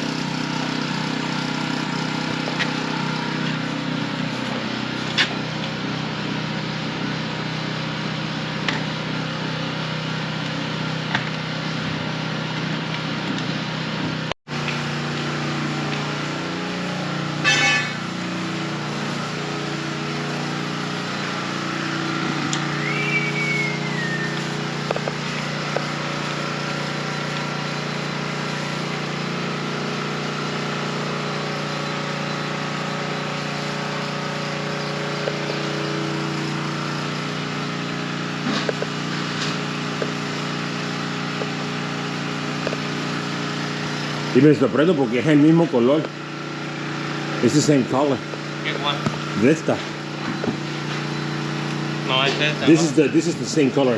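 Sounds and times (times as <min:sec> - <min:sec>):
engine humming steadily: 0:00.0 - 0:53.9
whistle-like glide: 0:21.8 - 0:24.8.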